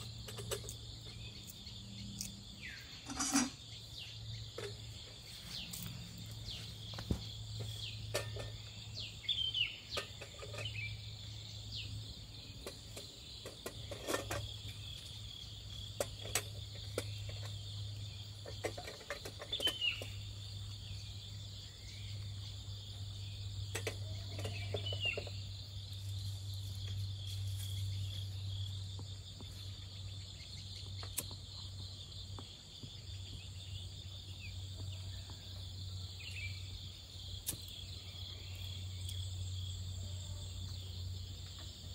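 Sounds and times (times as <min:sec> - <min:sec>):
insect chirring: 0:00.0 - 0:41.9
bird chirps: 0:16.1 - 0:25.5.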